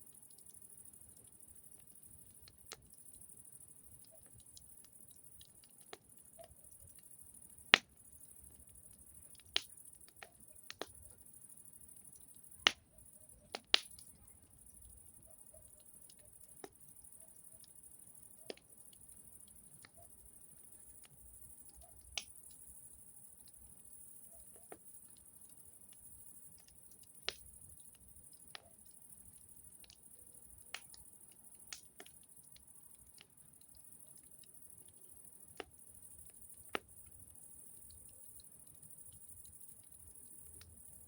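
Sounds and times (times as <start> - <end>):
campfire wood crackling: 0.0 - 41.0.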